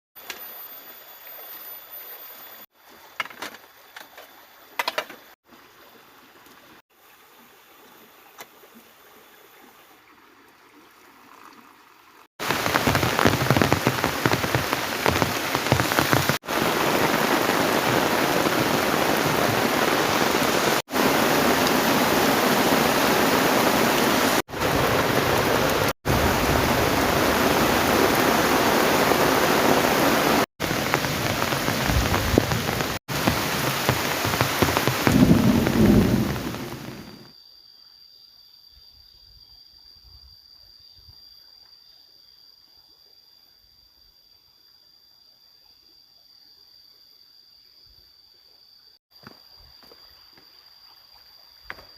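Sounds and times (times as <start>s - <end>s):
heavy rain: 12.4s - 37.3s.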